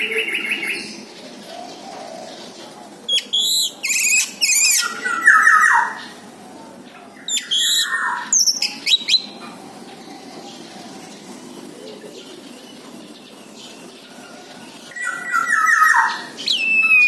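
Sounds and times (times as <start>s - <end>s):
thrush singing whistled notes: 3.1s - 6.0s, 7.3s - 9.4s, 14.9s - 17.0s.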